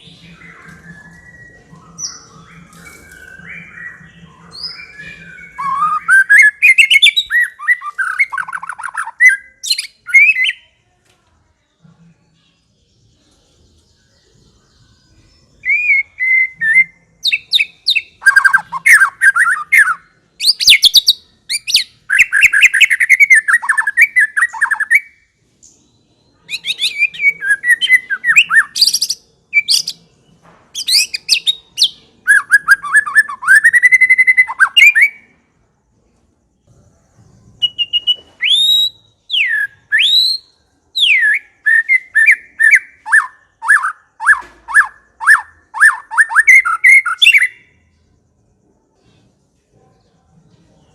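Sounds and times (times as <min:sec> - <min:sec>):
bird singing varied whistled phrases: 0:00.0 - 0:10.8, 0:15.5 - 0:25.3, 0:26.3 - 0:30.0, 0:30.8 - 0:35.3, 0:37.6 - 0:47.7.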